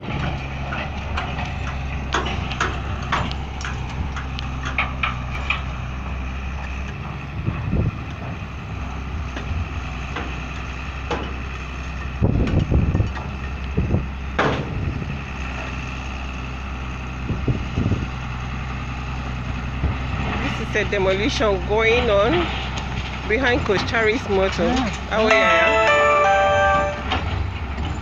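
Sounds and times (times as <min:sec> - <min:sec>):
sharp knocks and clanks: 0:00.0 - 0:05.9, 0:10.1 - 0:13.6, 0:14.4 - 0:14.8
heavy machine engine running: 0:00.0 - 0:28.0.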